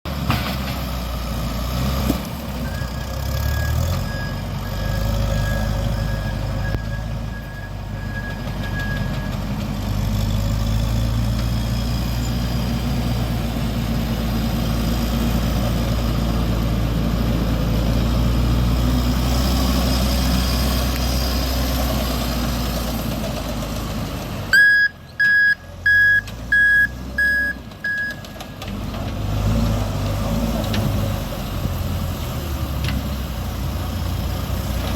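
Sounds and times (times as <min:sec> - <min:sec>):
tractor backhoe engine running: 0:00.1 - 0:34.9
reversing alarm beeping: 0:02.6 - 0:09.4, 0:24.5 - 0:28.3.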